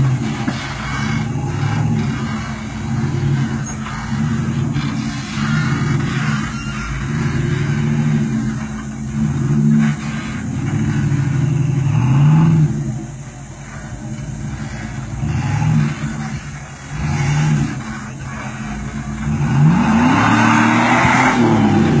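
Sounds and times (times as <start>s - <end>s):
suv engine revving: 0.0s - 22.0s.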